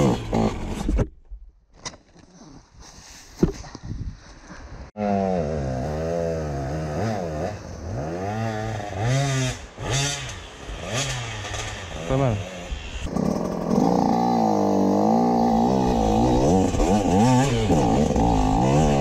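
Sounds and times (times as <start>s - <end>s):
motorcycle engine revving: 5.0s - 19.0s.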